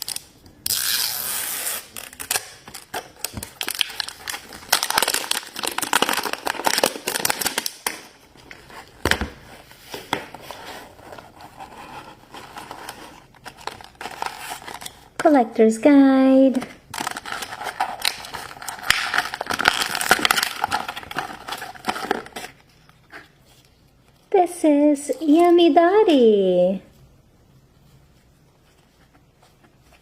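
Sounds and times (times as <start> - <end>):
packaging being torn and crinkled: 0.0 - 8.6, 16.9 - 23.2.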